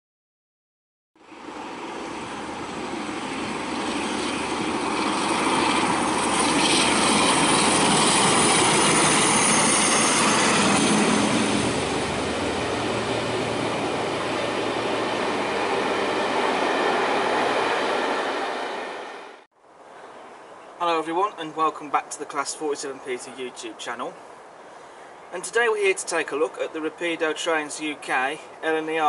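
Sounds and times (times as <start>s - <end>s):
locomotive approaching: 1.2s - 19.4s.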